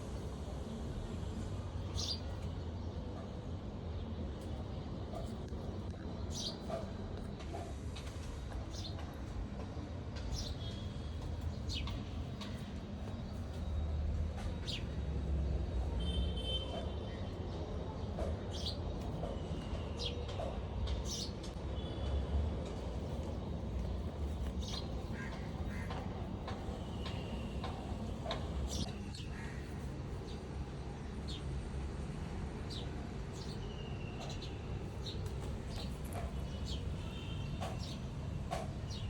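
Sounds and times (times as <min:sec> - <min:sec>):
small birds chirping: 0:10.2 - 0:13.9, 0:21.0 - 0:21.5, 0:23.2 - 0:31.5, 0:32.7 - 0:39.0.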